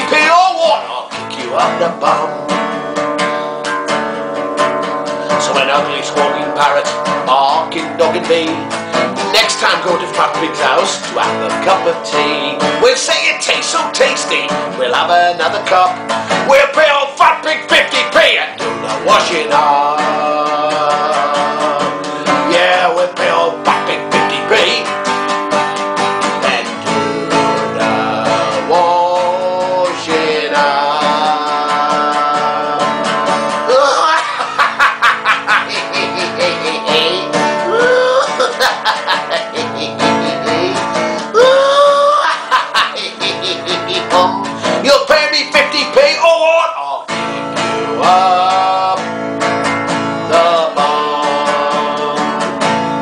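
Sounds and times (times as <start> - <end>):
person singing: 0.0 - 2.5, 5.2 - 24.9, 26.4 - 53.0
acoustic guitar strumming: 0.0 - 53.0.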